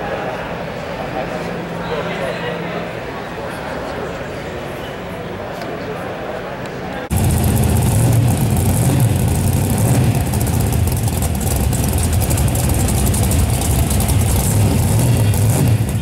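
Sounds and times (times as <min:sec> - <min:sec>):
car engine idling loudly: 0:07.0 - 0:16.0.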